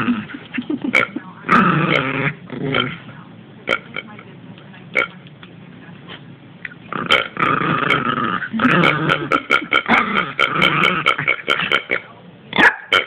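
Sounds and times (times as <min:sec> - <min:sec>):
dog making throaty burp-like noises: 0:00.0 - 0:03.0, 0:06.9 - 0:12.1.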